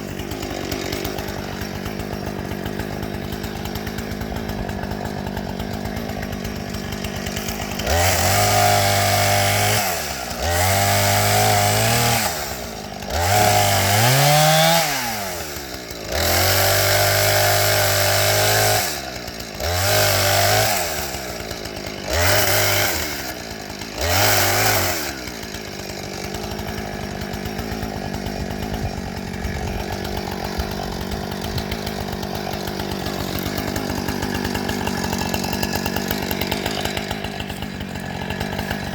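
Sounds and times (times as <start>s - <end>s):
chainsaw idling and revving: 0.0s - 38.9s.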